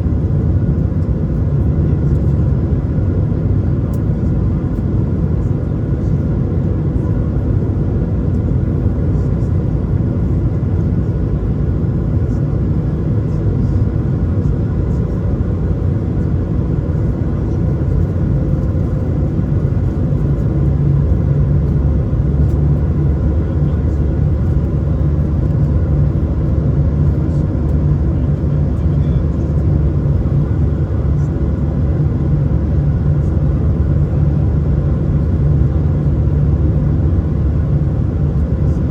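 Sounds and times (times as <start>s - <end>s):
airplane cabin rumble: 0.0s - 38.9s.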